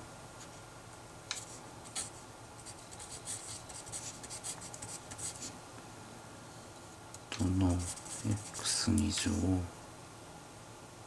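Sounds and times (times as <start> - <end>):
pen scratching on paper: 1.4 - 5.5, 7.7 - 8.8.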